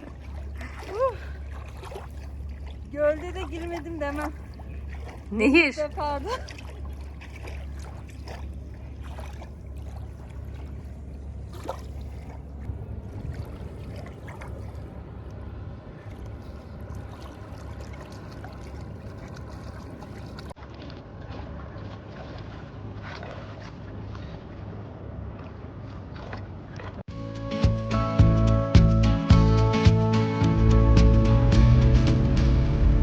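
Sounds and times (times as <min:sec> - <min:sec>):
river water lapping and splashing: 0:00.0 - 0:27.1
low rumble: 0:00.0 - 0:33.0.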